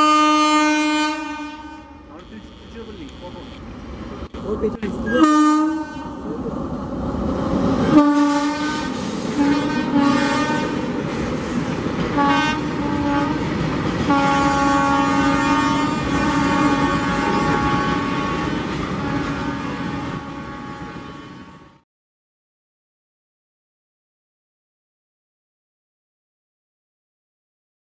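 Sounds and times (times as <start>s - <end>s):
train air horn blasts: 0.0s - 3.6s, 5.1s - 6.2s, 7.9s - 10.8s, 12.1s - 21.8s
freight train clattering past: 2.2s - 21.6s.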